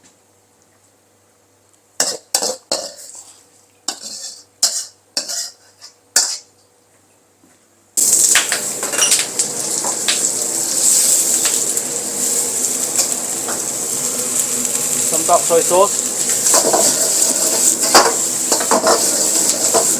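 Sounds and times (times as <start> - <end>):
food sizzling in hot oil: 3.9 - 6.5, 8.0 - 19.9.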